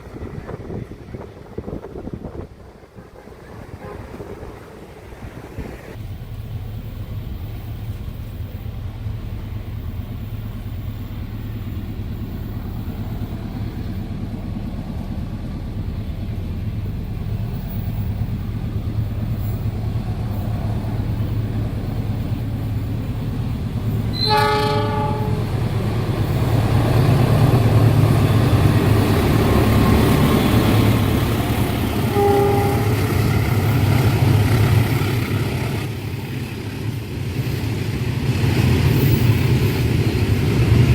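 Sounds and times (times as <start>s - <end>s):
train passing rumble: 0.0s - 40.9s
train horn blast: 3.1s - 4.5s, 24.1s - 25.6s, 32.0s - 33.3s.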